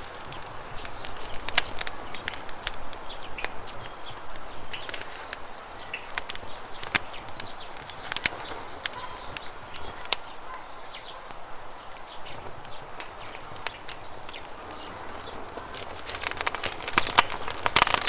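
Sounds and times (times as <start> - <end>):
birds chirping: 0.0 - 18.0
campfire crackling: 0.0 - 18.0.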